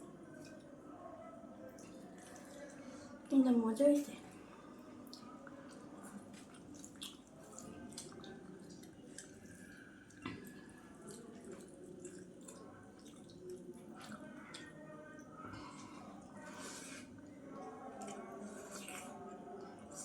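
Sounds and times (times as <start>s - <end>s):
wet chewing: 5.1s - 14.8s.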